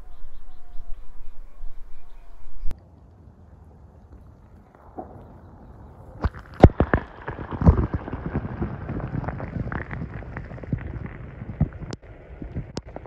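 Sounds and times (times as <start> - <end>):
creek water splashing: 3.8 - 13.0.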